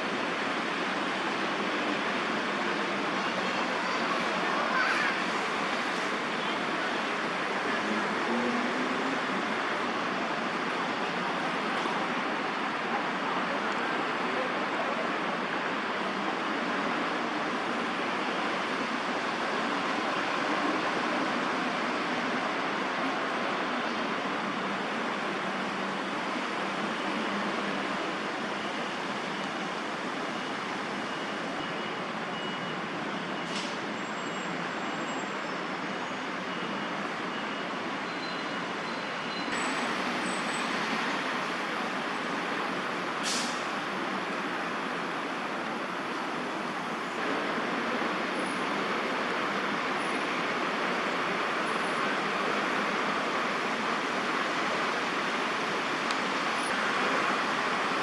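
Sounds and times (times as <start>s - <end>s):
city road traffic hum: 0.0s - 58.0s
brief high hiss: 43.2s - 43.7s.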